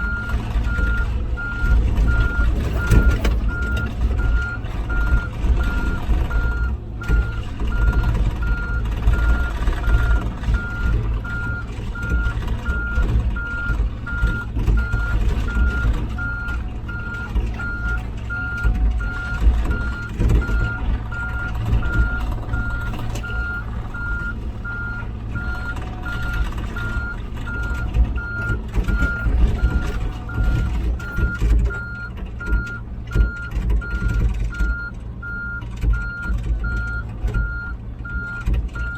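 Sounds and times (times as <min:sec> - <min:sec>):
diesel engine rumble: 0:00.0 - 0:38.9.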